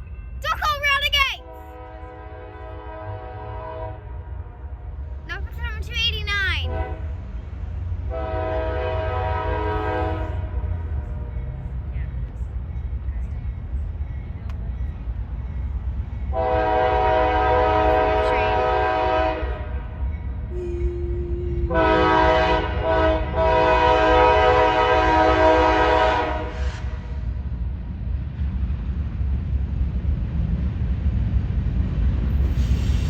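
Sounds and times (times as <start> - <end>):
train rumble: 0.0 - 33.0
locomotive air horn blasts: 1.4 - 4.6, 6.6 - 7.2, 8.1 - 11.4, 16.3 - 20.0, 20.6 - 27.0.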